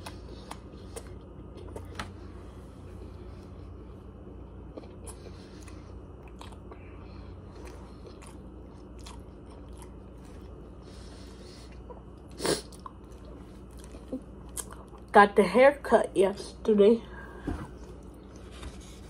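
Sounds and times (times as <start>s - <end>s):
person chewing food: 0.0s - 15.1s
steady low hum: 0.0s - 19.0s.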